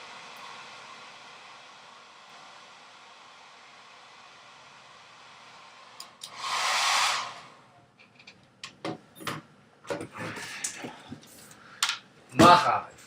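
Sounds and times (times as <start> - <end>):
loud rush of noise: 0.0 - 7.7
faint hiss: 0.0 - 8.0.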